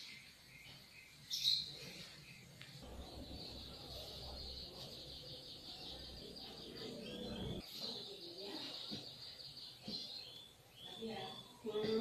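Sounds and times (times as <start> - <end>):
small birds chattering twitter: 0.0 - 12.0
low rumble: 2.8 - 4.8.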